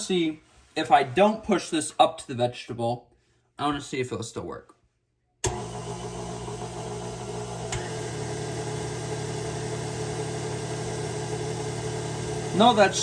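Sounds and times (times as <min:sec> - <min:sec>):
stand mixer motor running: 0:05.5 - 0:13.0.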